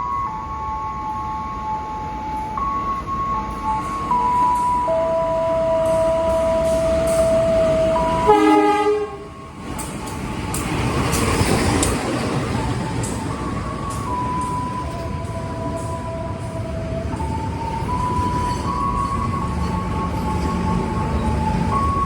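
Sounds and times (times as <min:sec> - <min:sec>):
electronic tones changing pitch: 0:00.0 - 0:09.5
train rumbling by: 0:00.0 - 0:22.0
train horn blast: 0:05.6 - 0:09.4
wheel clacks over rail joints: 0:09.6 - 0:22.0.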